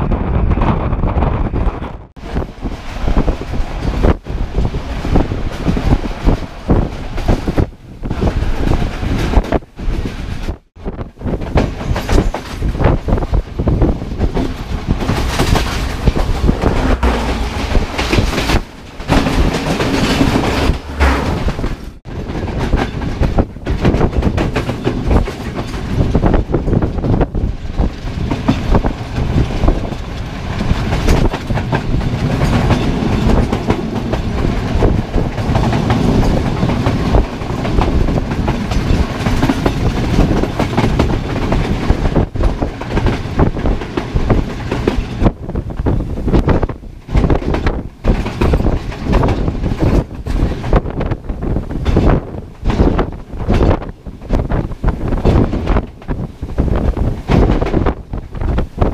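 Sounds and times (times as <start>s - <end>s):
train wheels clattering on rails: 0.0s - 58.9s.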